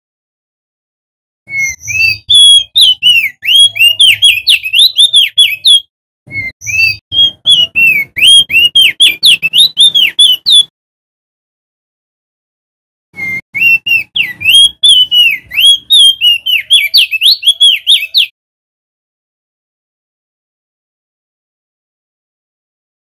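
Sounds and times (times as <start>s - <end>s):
bird singing whistled notes: 1.5s - 10.7s, 13.2s - 18.3s.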